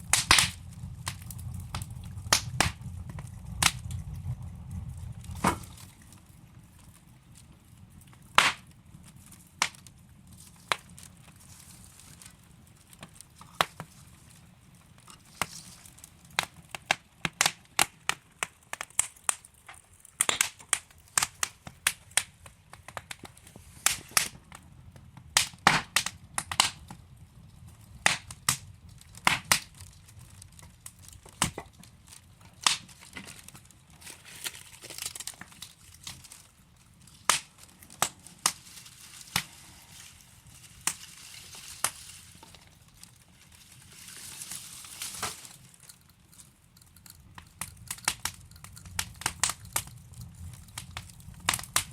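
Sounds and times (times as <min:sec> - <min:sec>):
low rumble of flames: 0:00.0 - 0:51.9
wood fire crackling and popping: 0:00.0 - 0:51.9.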